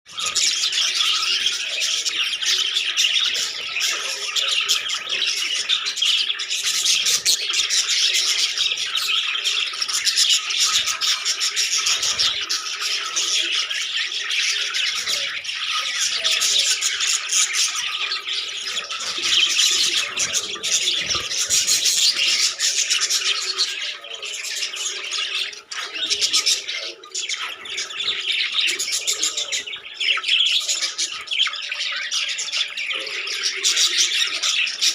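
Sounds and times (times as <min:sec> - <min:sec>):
budgerigars chattering: 0:00.1 - 0:34.9.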